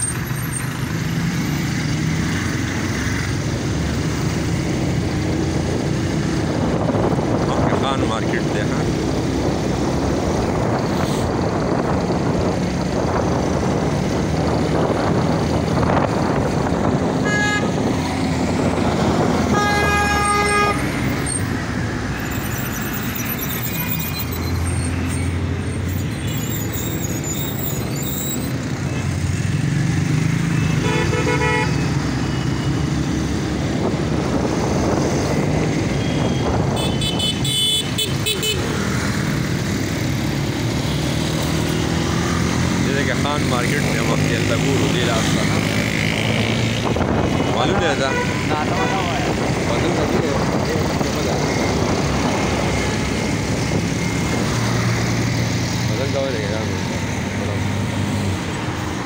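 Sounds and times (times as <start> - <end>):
motorcycle engine and road noise: 0.0 - 59.0
vehicle horns honking: 17.2 - 17.8, 19.4 - 20.9, 30.5 - 32.8, 35.9 - 38.8, 47.4 - 49.3.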